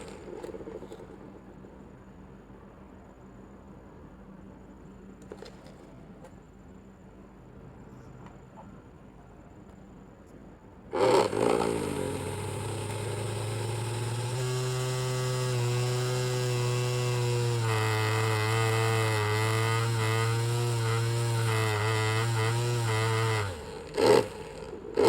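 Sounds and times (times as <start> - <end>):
small motor fan buzzing hum: 10.9 - 25.0.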